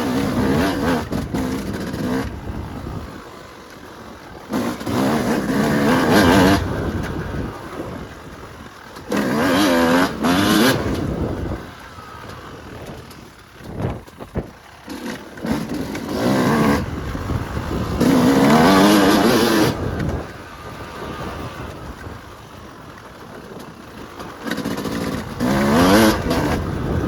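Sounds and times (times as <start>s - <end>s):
dirt bike engine revving: 0.0s - 22.8s, 23.4s - 27.0s.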